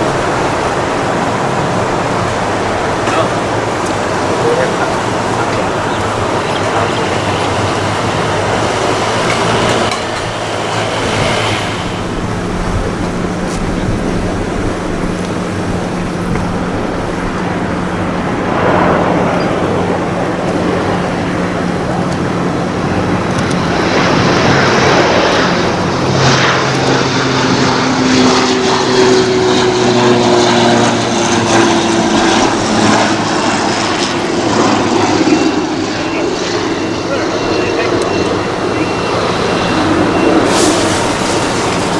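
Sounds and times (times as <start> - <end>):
propeller aircraft drone: 0.0 - 41.9
high tone dropping in pitch: 35.2 - 41.9.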